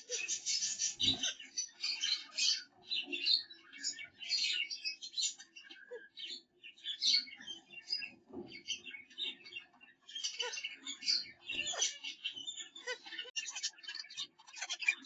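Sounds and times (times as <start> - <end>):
finches chirping and twittering: 0.0 - 15.0.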